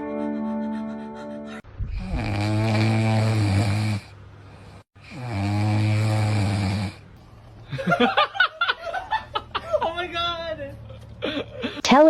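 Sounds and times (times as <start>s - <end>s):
pet snoring loudly: 2.0s - 7.0s.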